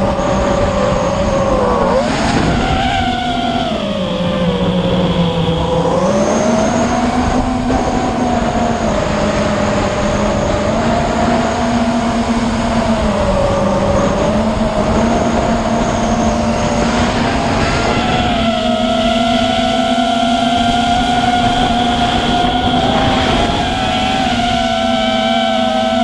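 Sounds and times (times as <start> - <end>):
motor droning: 0.0 - 26.0
wind buffeting microphone: 0.0 - 26.0.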